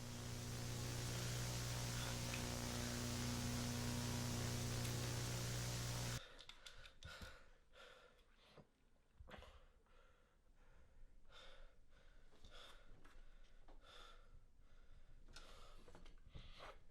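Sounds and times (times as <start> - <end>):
low hum: 0.0 - 6.2
static hiss: 0.0 - 6.2.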